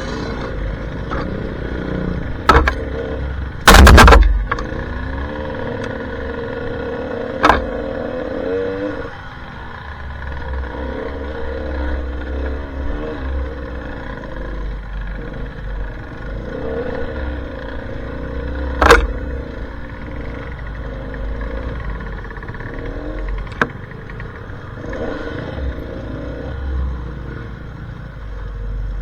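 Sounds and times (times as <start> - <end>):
motorcycle engine revving: 0.0 - 29.0
sharp loud knock: 3.7 - 4.8, 18.8 - 19.2.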